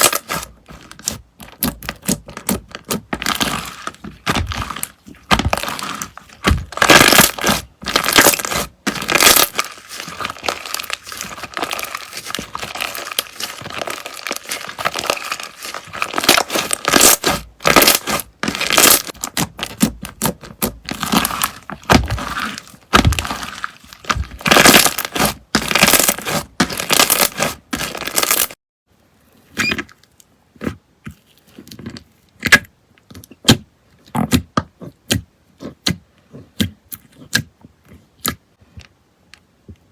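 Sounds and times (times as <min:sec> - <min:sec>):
slime crackling and popping: 0:00.0 - 0:28.6.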